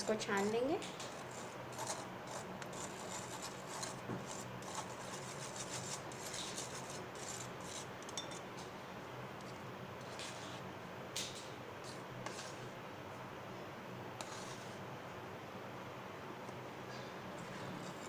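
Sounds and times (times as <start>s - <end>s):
flour sifting through sieve: 1.1s - 7.9s, 10.0s - 10.7s, 12.2s - 12.7s, 14.2s - 14.8s.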